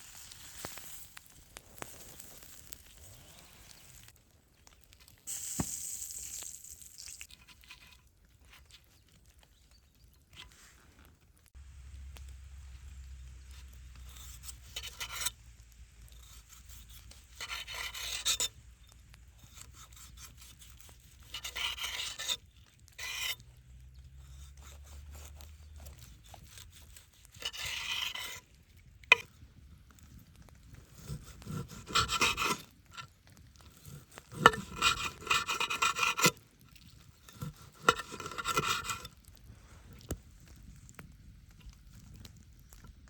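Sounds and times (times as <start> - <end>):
rasping scraping strokes on food: 0.0 - 4.1, 10.3 - 29.4, 30.0 - 41.0.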